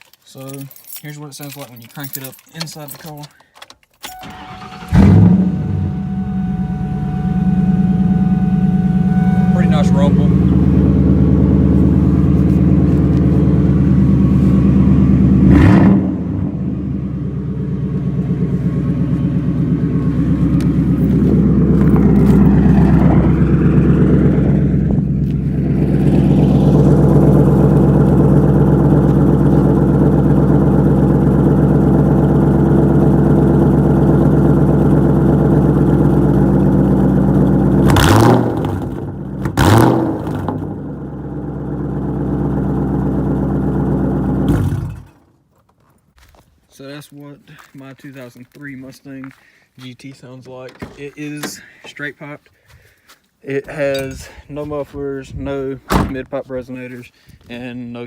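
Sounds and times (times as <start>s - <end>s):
car engine deep rumble: 4.3s - 45.1s.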